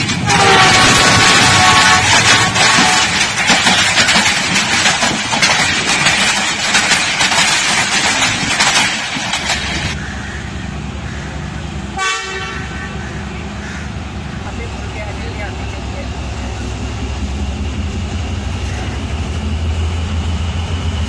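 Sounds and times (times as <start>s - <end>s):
wheels clattering on rails: 0.0s - 10.4s
diesel locomotive engine idling: 0.0s - 21.0s
train rushing past: 0.0s - 21.0s.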